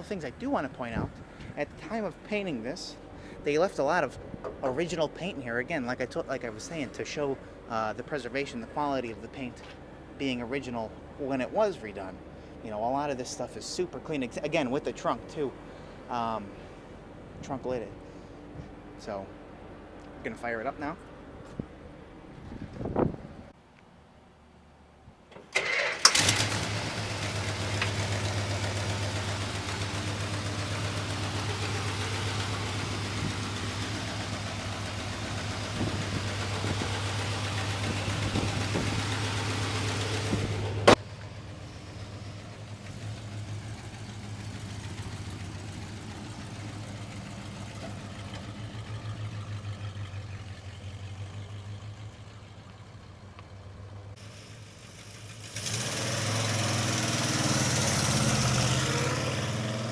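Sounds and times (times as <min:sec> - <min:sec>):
car engine starting and idling: 0:25.3 - 0:59.9.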